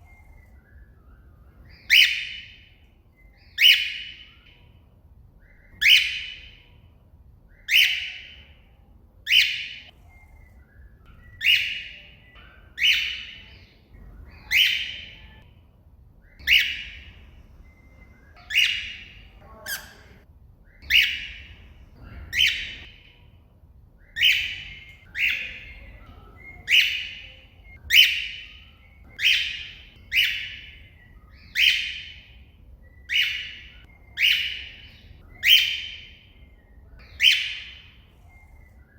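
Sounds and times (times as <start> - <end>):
cockatiel shrill calls: 1.7 - 2.6, 5.4 - 6.6, 16.4 - 17.1, 18.4 - 20.0, 20.8 - 21.4, 24.0 - 25.9, 26.6 - 30.8, 31.4 - 32.3, 33.1 - 36.2, 37.0 - 38.0.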